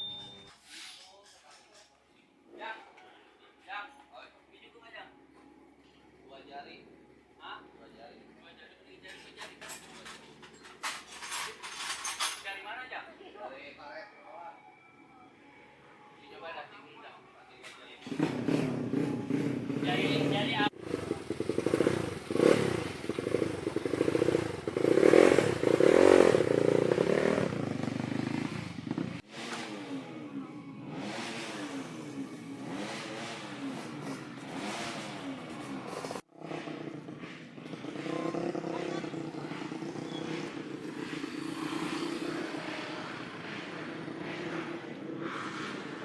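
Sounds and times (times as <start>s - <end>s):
motocross bike engine revving: 18.0s - 46.0s.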